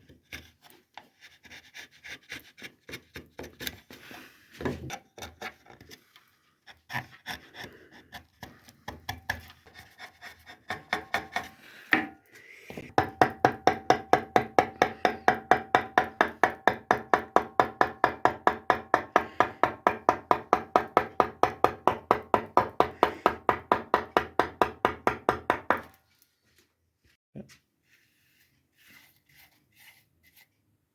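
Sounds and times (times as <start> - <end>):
hand tool scraping wood: 0.1 - 12.1
rasping strokes on wood: 6.7 - 11.6.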